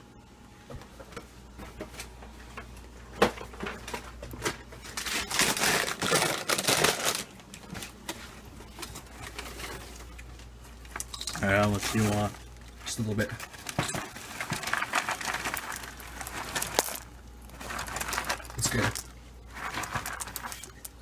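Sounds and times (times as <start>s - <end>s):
cereal bag crinkling: 4.8s - 8.0s, 10.8s - 21.0s.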